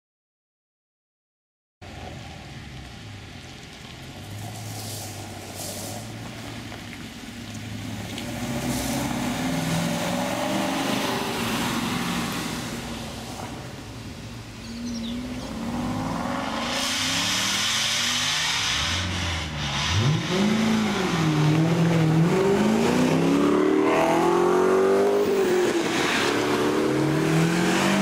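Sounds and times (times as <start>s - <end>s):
car driving past: 3.8s - 28.0s
car engine revving up: 7.6s - 28.0s.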